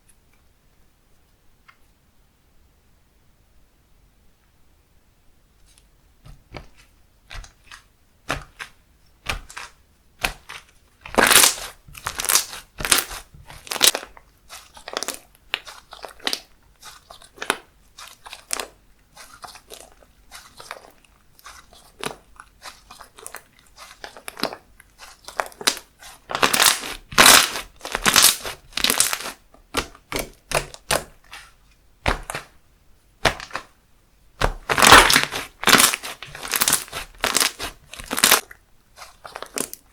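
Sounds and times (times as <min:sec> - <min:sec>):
slime squished by hand: 0:06.3 - 0:32.6, 0:33.2 - 0:33.8, 0:34.4 - 0:39.9.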